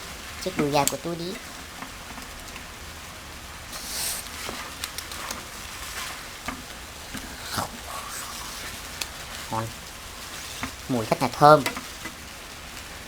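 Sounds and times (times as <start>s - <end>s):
chicken sizzling in a frying pan: 0.0s - 13.0s
utensil clicking against pan: 4.2s - 5.4s.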